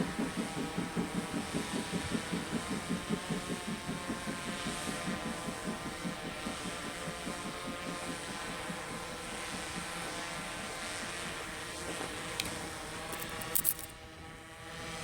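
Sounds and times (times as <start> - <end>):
drone motors humming: 0.0 - 15.0
low rhythmic pulsing: 0.0 - 15.0
sharp clicks: 12.3 - 13.9.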